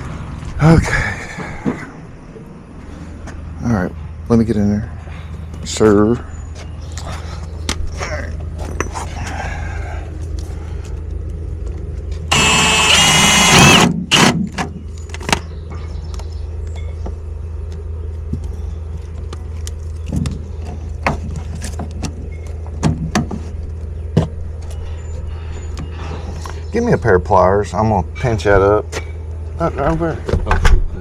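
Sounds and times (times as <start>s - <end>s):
steady low hum: 0.0s - 31.0s
cordless drill whine: 12.3s - 14.3s.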